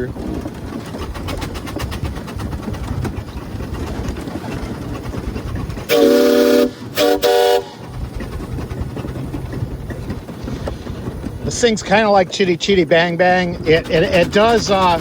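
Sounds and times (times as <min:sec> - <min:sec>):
car low running rumble: 0:00.0 - 0:15.0
steam whistle blasts: 0:05.9 - 0:07.8.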